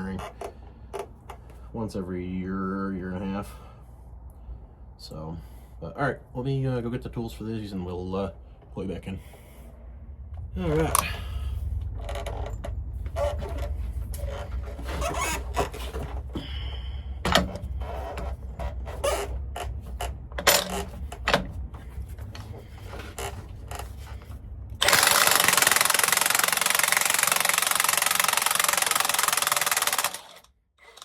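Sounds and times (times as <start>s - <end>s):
loud steady machine noise: 24.8s - 30.5s.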